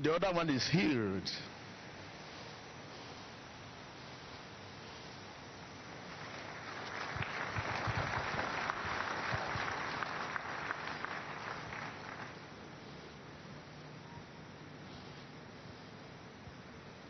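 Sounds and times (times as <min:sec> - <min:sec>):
crowd applauding: 0:06.0 - 0:12.5.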